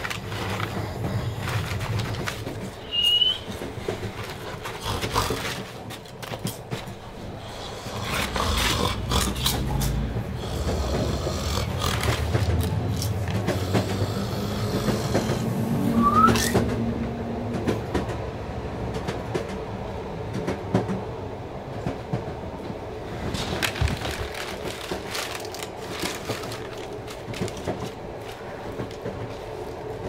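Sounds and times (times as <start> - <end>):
train rumbling: 0.0 - 30.0
wheels clicking over rails: 0.0 - 30.0
rising squeal: 2.8 - 3.5, 15.7 - 16.7.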